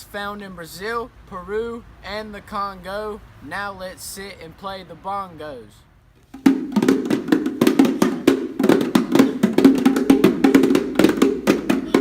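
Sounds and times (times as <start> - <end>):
bongos played by hand: 6.2 - 12.0.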